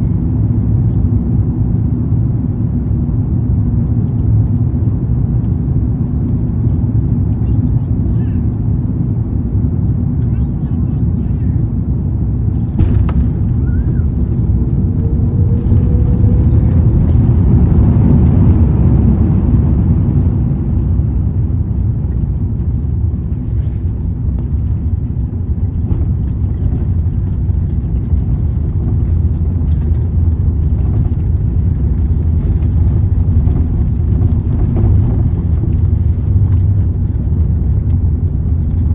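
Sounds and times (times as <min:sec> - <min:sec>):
loud low rumble of airliner: 0:00.0 - 0:38.9
faint rising whine: 0:12.6 - 0:21.3.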